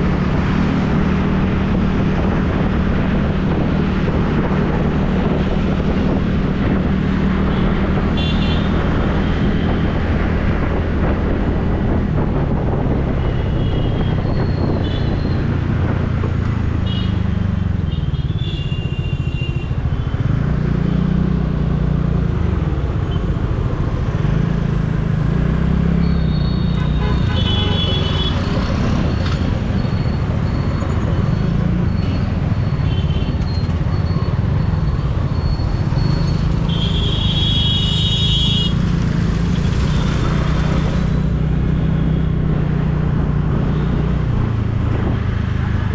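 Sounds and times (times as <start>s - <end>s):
vehicle horns honking: 8.2s - 8.7s, 26.6s - 28.6s, 36.6s - 38.9s.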